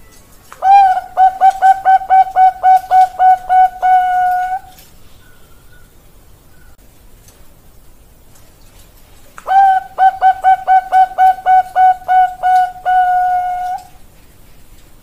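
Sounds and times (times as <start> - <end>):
dove cooing: 0.6 - 4.8, 9.5 - 14.0.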